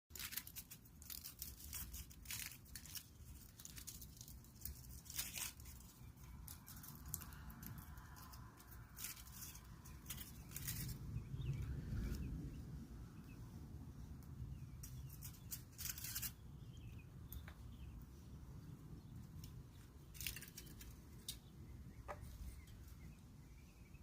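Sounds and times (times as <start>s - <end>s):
rustling and crackling: 0.1s - 23.2s
low steady rumble: 6.0s - 15.7s.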